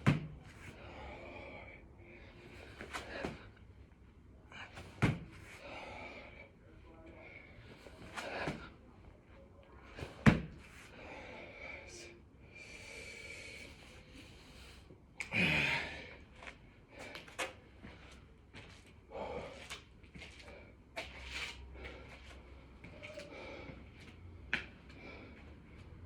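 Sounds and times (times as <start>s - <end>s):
man breathing heavily: 0.0s - 9.0s, 9.8s - 26.0s.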